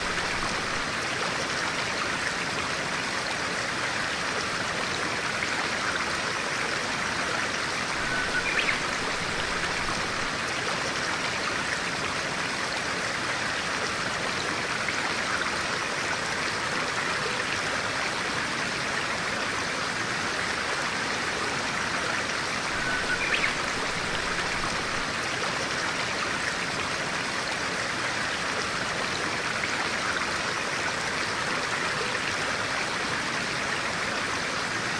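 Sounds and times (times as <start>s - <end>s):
stream flowing over rocks: 0.0s - 34.9s
bird chirp: 8.0s - 10.3s, 22.8s - 25.0s.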